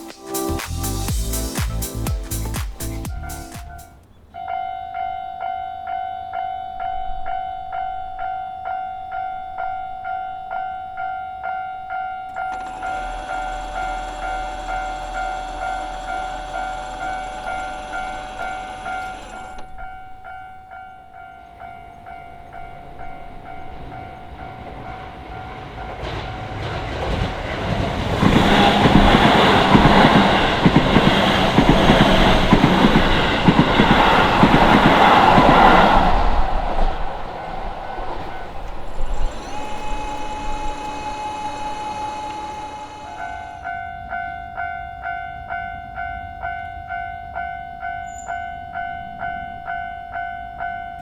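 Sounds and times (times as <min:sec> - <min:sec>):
train wheels clacking over joints: 0:23.8 - 0:43.4.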